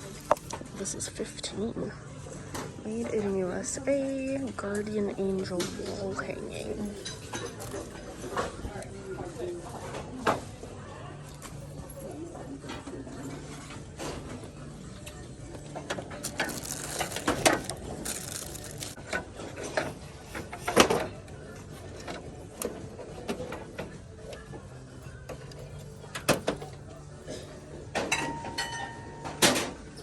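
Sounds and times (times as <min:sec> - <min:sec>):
hard objects clattering: 0:16.0 - 0:19.0.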